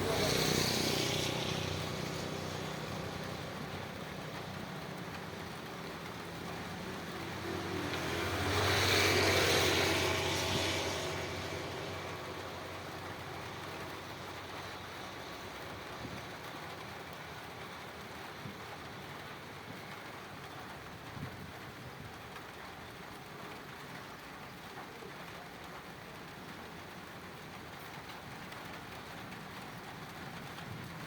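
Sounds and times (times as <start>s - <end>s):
engine passing: 0.0s - 19.3s
steady rain: 0.0s - 31.0s.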